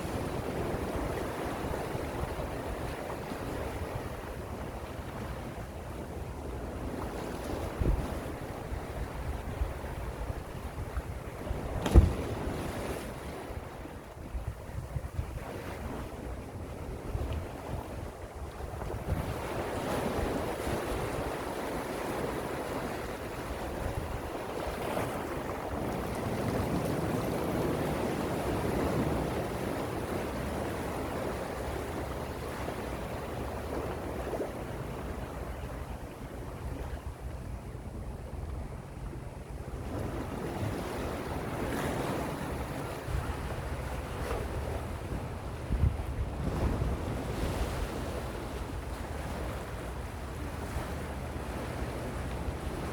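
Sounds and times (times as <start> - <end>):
sea waves washing ashore: 0.0 - 52.9.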